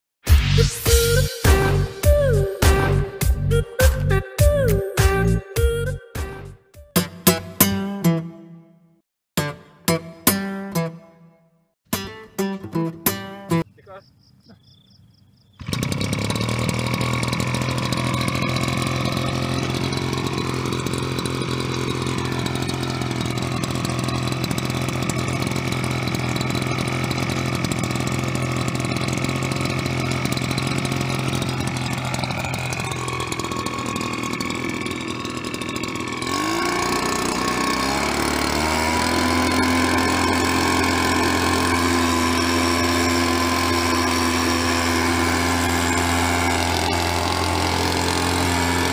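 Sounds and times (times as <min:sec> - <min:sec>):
two-stroke engine revving: 0:00.4 - 0:05.4, 0:15.6 - 0:48.9.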